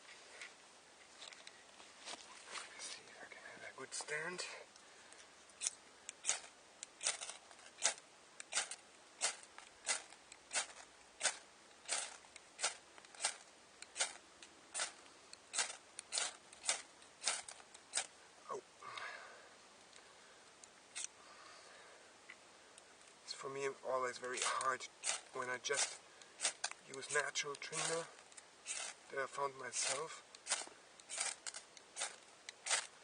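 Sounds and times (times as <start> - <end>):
fire striker scraping: 5.1 - 18.2, 20.9 - 21.1, 24.0 - 33.0.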